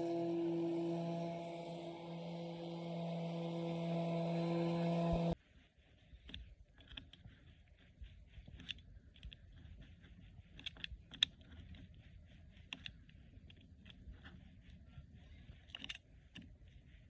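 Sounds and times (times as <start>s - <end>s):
small hard parts clicking: 8.4s - 14.5s, 15.4s - 16.8s.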